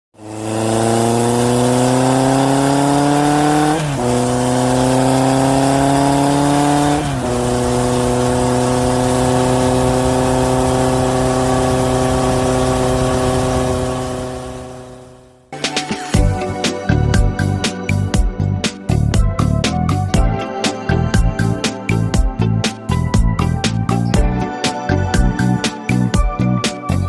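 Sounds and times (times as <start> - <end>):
vehicle engine accelerating: 0.2 - 15.5.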